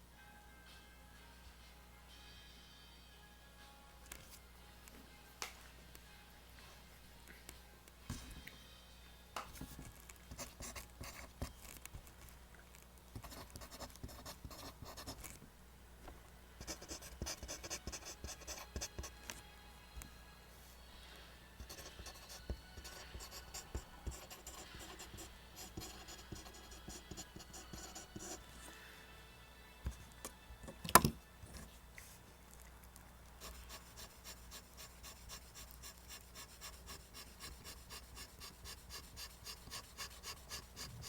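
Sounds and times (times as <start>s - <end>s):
pencil scratching on paper: 10.3s - 11.6s, 13.2s - 15.4s, 16.6s - 19.2s, 21.6s - 28.4s, 33.4s - 41.0s.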